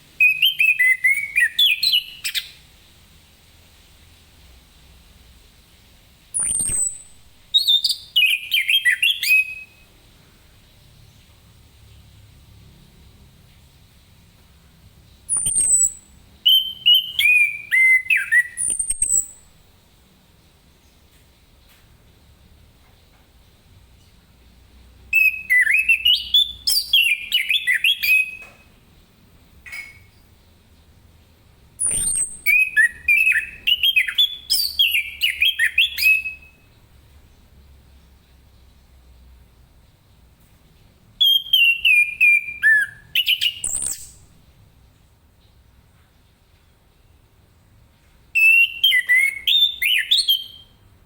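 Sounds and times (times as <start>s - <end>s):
thrush singing whistled notes: 0.2s - 2.6s, 6.4s - 9.8s, 15.3s - 19.5s, 25.1s - 28.7s, 31.8s - 36.7s, 41.2s - 44.3s, 48.4s - 50.8s.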